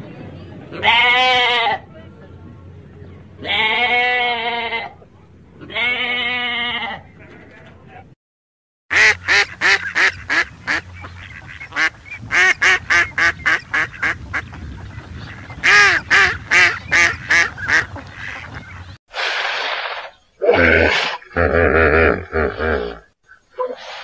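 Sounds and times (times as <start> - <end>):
duck quacking: 8.9 - 18.9.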